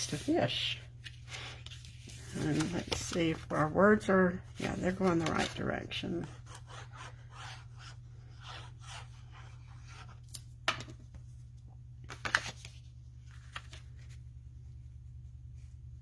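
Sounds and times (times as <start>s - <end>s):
paper rustling: 0.0s - 7.7s, 12.1s - 14.3s
steady low hum: 0.0s - 16.0s.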